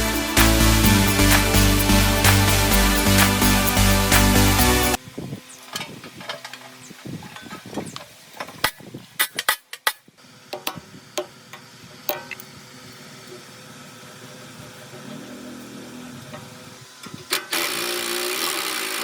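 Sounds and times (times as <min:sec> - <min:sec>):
electronic background music: 0:00.0 - 0:05.0.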